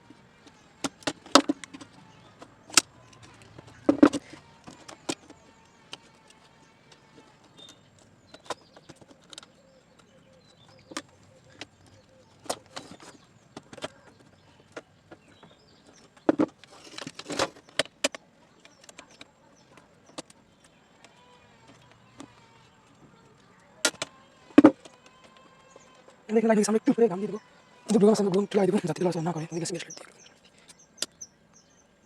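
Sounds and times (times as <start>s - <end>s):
rustling: 0.0s - 30.8s
plastic clicks and knocks: 0.4s - 23.0s, 23.8s - 26.0s.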